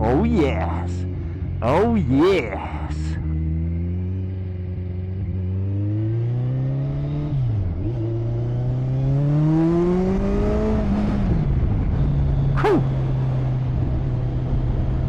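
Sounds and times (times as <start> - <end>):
motorcycle engine accelerating: 3.2 - 15.0.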